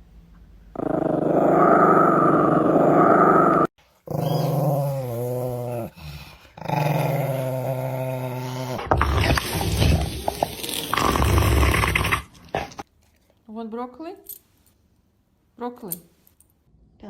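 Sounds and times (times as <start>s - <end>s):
dog growling: 0.8s - 12.9s.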